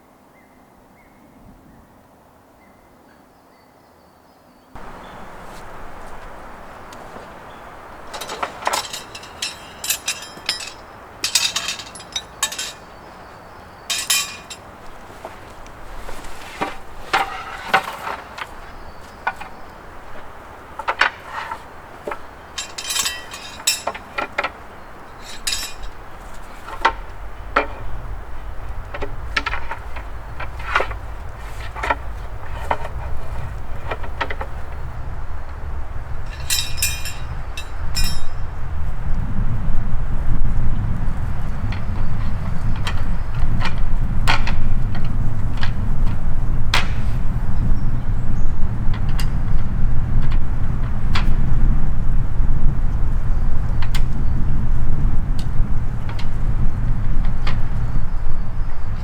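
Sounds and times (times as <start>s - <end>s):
camping gear clinking and clattering: 4.8s - 38.8s.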